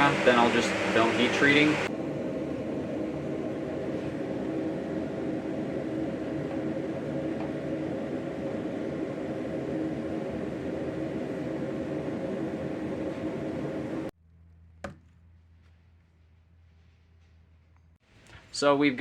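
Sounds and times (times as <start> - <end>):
forge burner droning: 0.0 - 14.2.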